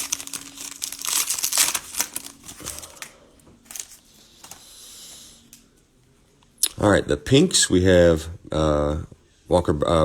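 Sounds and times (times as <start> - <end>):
cellophane wrapper crinkling: 0.0 - 4.7.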